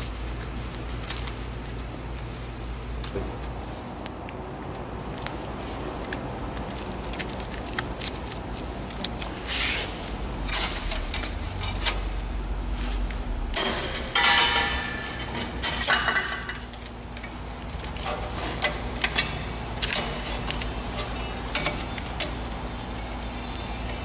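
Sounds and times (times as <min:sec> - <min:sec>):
low machine hum: 0:00.0 - 0:24.0
metal parts clanking: 0:10.5 - 0:12.2, 0:13.6 - 0:17.0.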